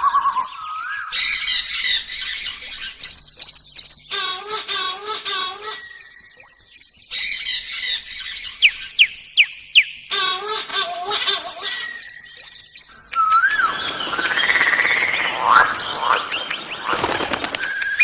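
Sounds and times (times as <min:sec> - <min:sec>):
birds chirping and calling: 0:00.0 - 0:18.0.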